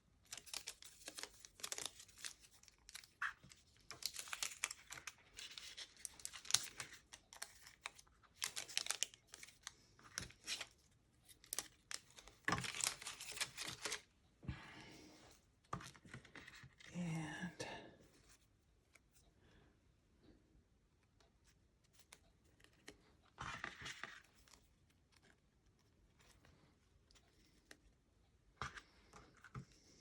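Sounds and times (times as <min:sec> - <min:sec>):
paper crinkling: 0:00.2 - 0:14.0
paper rustling: 0:00.3 - 0:14.0.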